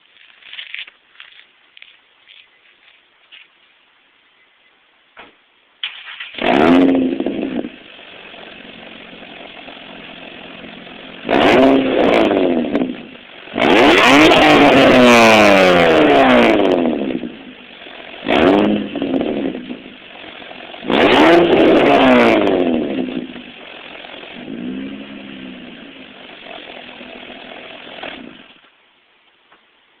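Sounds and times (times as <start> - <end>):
car engine idling and revving: 5.9 - 28.6.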